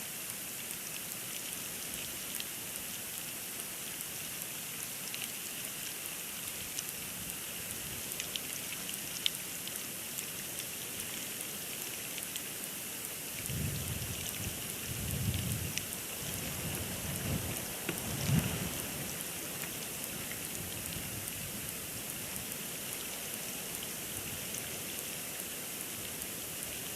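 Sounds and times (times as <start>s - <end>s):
storm hiss: 13.4s - 19.5s
wind buffeting microphone: 13.5s - 19.0s.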